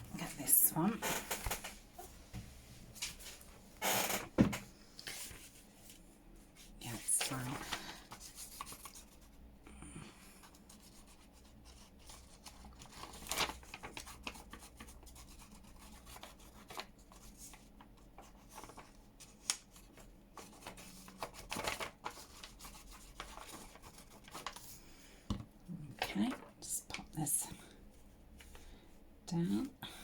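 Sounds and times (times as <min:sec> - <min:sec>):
paper and card rustling: 0:06.9 - 0:09.2, 0:11.7 - 0:24.8.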